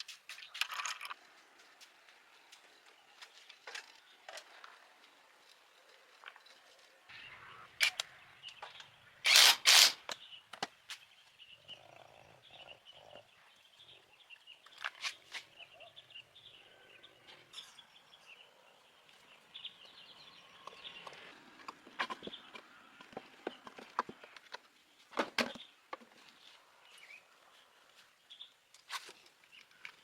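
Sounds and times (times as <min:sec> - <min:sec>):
animals chirring: 0:11.3 - 0:17.7.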